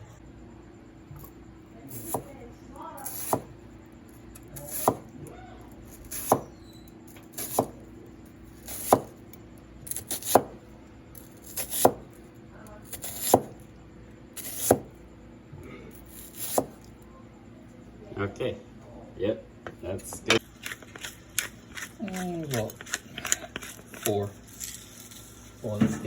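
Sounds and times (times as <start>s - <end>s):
knife chopping on cutting board: 2.0s - 2.3s, 3.0s - 3.5s, 4.6s - 5.1s, 6.1s - 6.5s, 7.4s - 7.8s, 8.6s - 9.2s, 9.9s - 10.6s, 11.4s - 12.1s, 12.9s - 13.6s, 14.4s - 14.9s, 16.1s - 16.8s.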